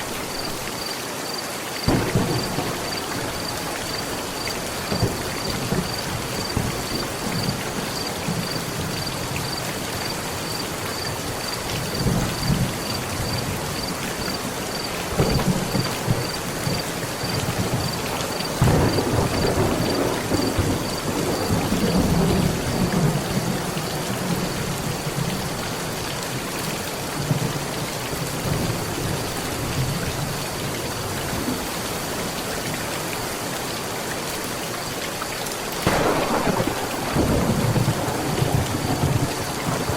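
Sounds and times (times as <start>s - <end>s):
heavy rain on a metal roof: 0.0s - 39.9s
thunder rumbling: 1.9s - 9.6s, 11.8s - 25.3s, 35.8s - 39.9s.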